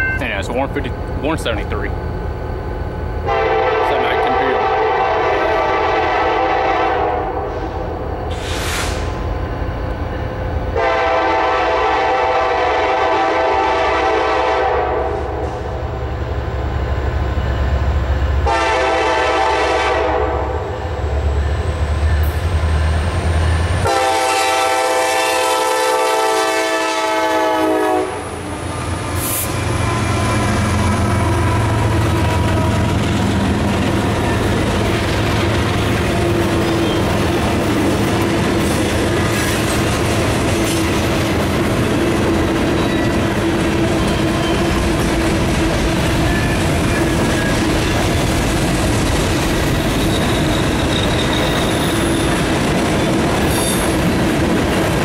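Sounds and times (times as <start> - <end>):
diesel locomotive rumble: 0.0 - 55.0
train air horn blasts: 3.2 - 9.1, 10.8 - 15.8, 18.4 - 20.9, 23.8 - 28.4.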